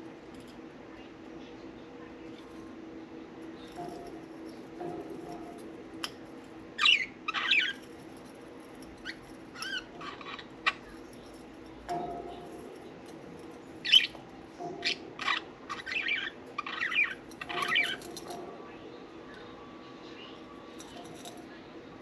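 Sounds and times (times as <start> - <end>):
faint steady hum: 0.0 - 22.0
budgerigars chirping and warbling: 6.8 - 7.8, 13.8 - 14.2, 14.8 - 18.4.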